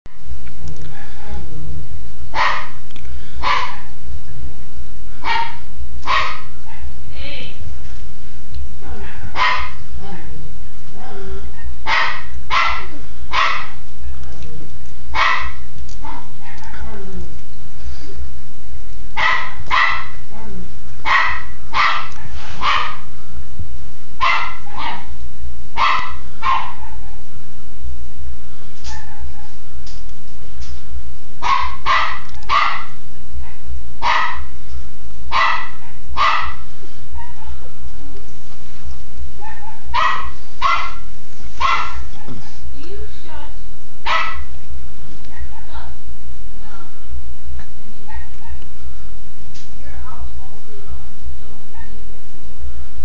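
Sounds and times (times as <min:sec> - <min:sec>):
low rumble: 0:00.1 - 0:53.0
puppy barking: 0:02.3 - 0:02.8, 0:03.4 - 0:03.9, 0:05.2 - 0:06.5, 0:09.4 - 0:09.8, 0:11.8 - 0:13.8, 0:15.2 - 0:16.4, 0:19.2 - 0:23.1, 0:24.2 - 0:25.1, 0:25.8 - 0:27.0, 0:31.4 - 0:33.0, 0:34.0 - 0:34.5, 0:35.3 - 0:37.5, 0:39.4 - 0:42.2, 0:44.0 - 0:44.5.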